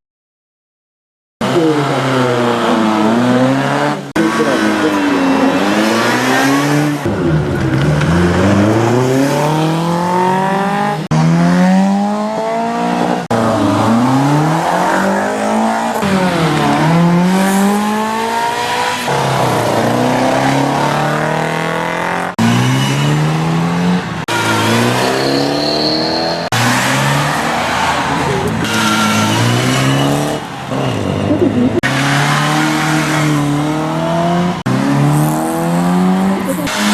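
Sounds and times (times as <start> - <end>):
car engines revving hard: 1.4 - 36.9.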